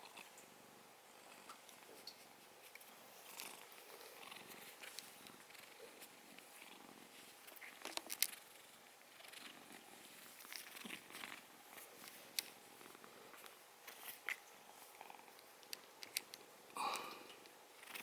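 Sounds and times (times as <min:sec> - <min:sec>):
cat purring softly: 0:03.1 - 0:15.4, 0:17.7 - 0:18.0.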